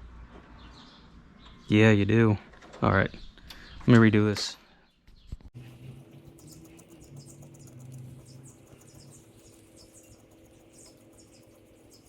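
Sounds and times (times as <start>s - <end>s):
high-pitched chirping: 5.7s - 12.0s.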